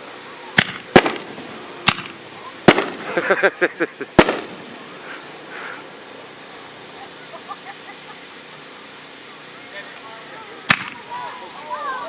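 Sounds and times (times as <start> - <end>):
crackling pops: 0.5 - 3.2, 4.2 - 4.8, 10.7 - 11.1
fireworks bangs: 0.5 - 3.5, 4.1 - 5.0, 10.7 - 11.1.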